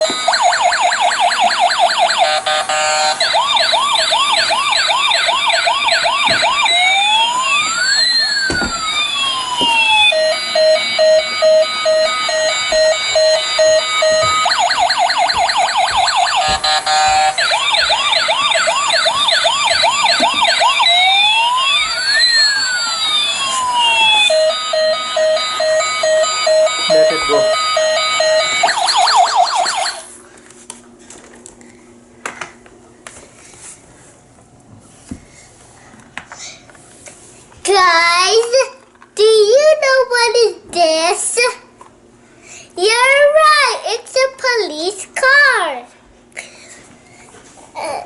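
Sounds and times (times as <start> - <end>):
electronic police siren: 0.0 - 30.2.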